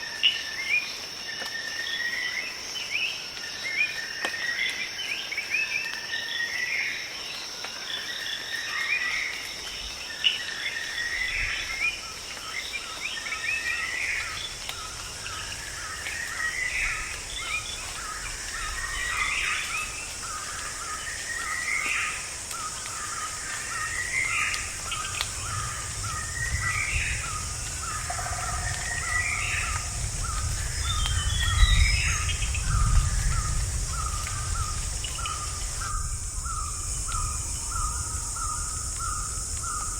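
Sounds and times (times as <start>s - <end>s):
high-pitched insect drone: 15.1s - 39.9s
bird rising call: 22.9s - 39.8s
low rumble: 24.6s - 36.4s.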